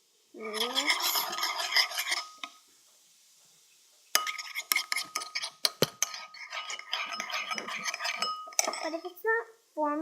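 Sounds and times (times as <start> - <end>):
spoon clinking and scraping bowl: 0.4 - 2.6, 4.1 - 9.1.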